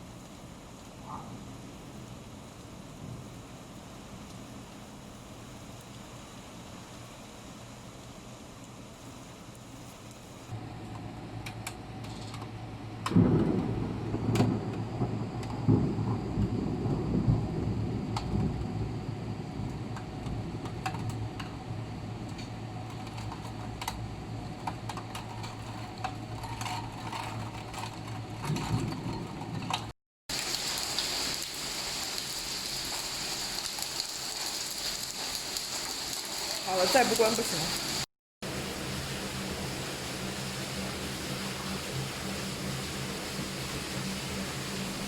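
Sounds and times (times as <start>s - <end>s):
steady low hum: 0.0s - 29.9s
rain falling: 0.0s - 45.0s.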